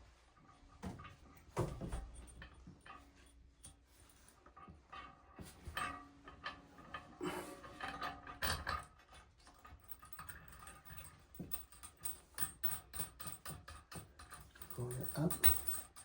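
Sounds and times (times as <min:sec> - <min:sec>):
small metallic knocks: 0:04.5 - 0:16.0.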